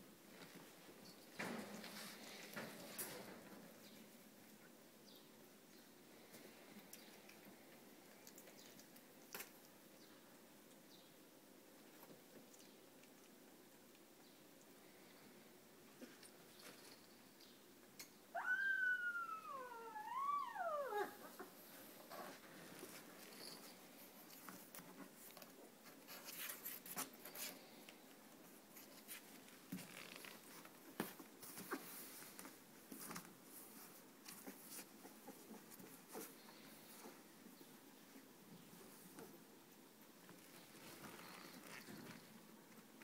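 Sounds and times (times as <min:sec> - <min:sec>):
rustling: 0:00.3 - 0:04.6, 0:21.0 - 0:43.0
puppy whining: 0:18.4 - 0:22.4.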